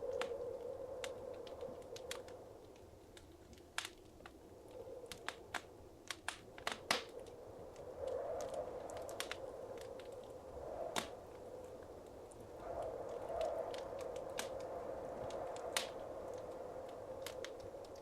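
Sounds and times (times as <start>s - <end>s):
wood fire crackling: 0.0s - 18.0s
sharp pops of fire: 5.2s - 7.2s, 10.9s - 11.2s, 15.7s - 16.0s.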